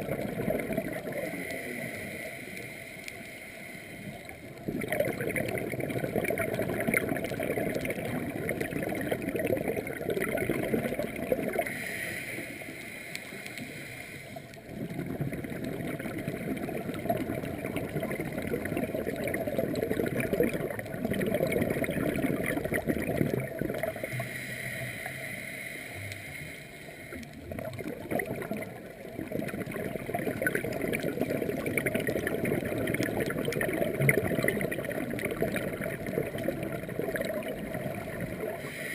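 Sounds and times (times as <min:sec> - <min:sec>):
underwater bubbling exhalation: 0:00.0 - 0:02.6, 0:04.0 - 0:11.9, 0:14.6 - 0:25.0, 0:27.1 - 0:38.9
hissing inhale: 0:01.1 - 0:04.4, 0:11.6 - 0:14.7, 0:23.9 - 0:27.4, 0:38.5 - 0:38.9.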